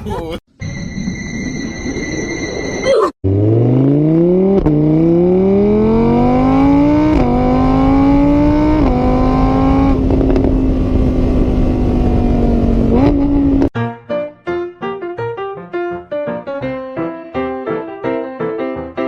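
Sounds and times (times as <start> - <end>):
engine revving through gears: 3.2 - 13.7
piano music: 13.8 - 19.0.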